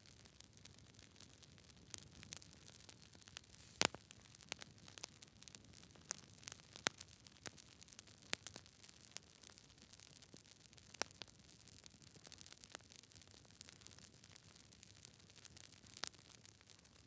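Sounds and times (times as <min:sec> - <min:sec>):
campfire crackling: 0:00.1 - 0:17.0
faint steady hiss: 0:01.2 - 0:10.4.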